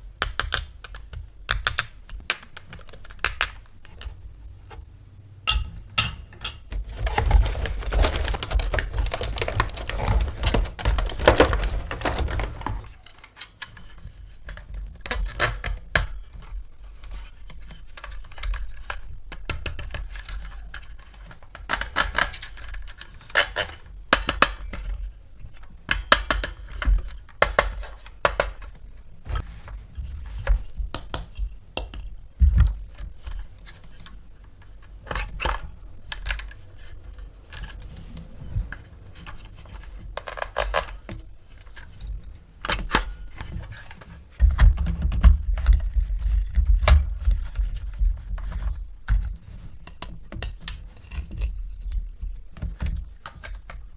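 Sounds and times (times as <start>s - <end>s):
plastic toy parts clattering: 5.5s - 16.2s, 17.6s - 28.8s, 32.9s - 47.8s
rustling: 6.8s - 14.7s.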